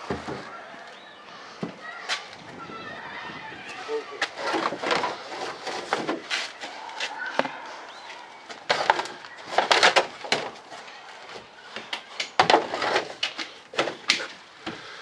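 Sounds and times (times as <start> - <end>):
items knocking and clattering: 4.2 - 6.3, 8.5 - 10.7, 11.8 - 14.9.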